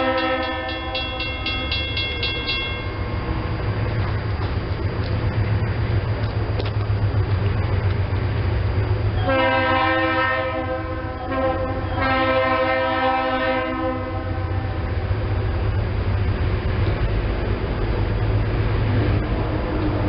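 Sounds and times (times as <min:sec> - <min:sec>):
locomotive air horn blasts: 0:00.0 - 0:01.2, 0:09.2 - 0:14.8
train running rumble: 0:00.0 - 0:20.0.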